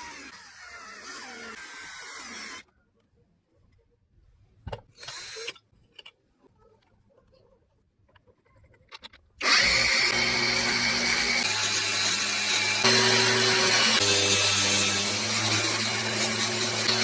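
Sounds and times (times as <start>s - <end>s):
electric drill spinning: 0.0s - 2.7s, 9.4s - 17.0s.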